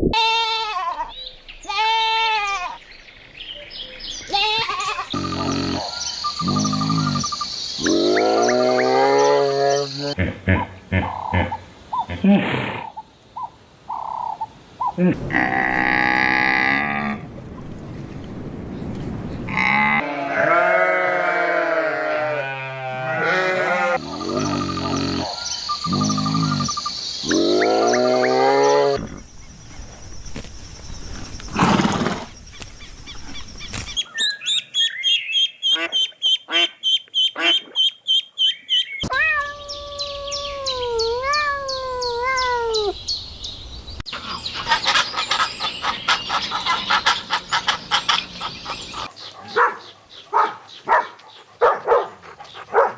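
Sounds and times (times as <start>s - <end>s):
wavering animal calls: 4.3s - 13.0s, 19.5s - 29.2s.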